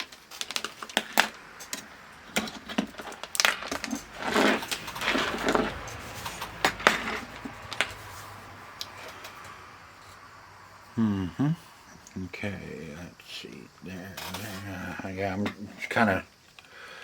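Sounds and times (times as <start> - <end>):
hands handling plastic parts: 0.0 - 9.5
rubbing: 2.9 - 8.4.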